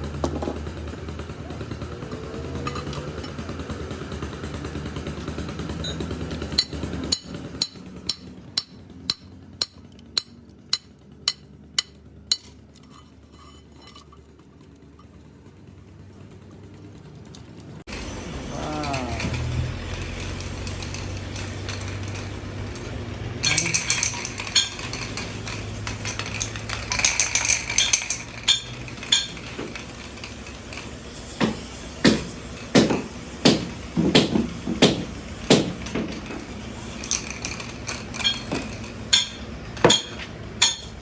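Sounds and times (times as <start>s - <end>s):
metal tools clinking: 2.6s - 3.4s, 5.8s - 15.3s, 18.8s - 31.8s, 37.0s - 41.0s
hammer strikes on metal: 6.6s - 12.5s, 31.4s - 36.2s, 39.1s - 41.0s.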